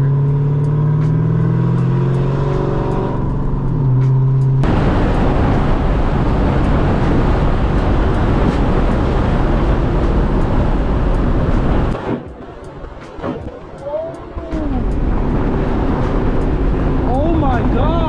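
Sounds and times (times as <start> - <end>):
car engine through loud exhaust: 0.0 - 18.0
loud even rushing noise: 4.0 - 18.0.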